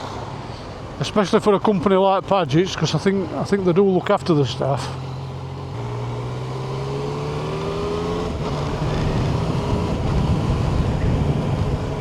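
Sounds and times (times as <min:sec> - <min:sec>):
motorcycle engine accelerating: 0:04.9 - 0:12.0.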